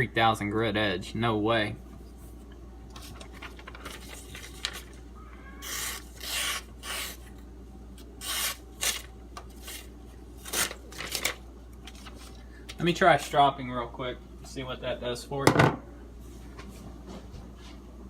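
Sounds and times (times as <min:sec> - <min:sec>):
knife blade scraping: 0:05.6 - 0:07.3, 0:08.2 - 0:09.9.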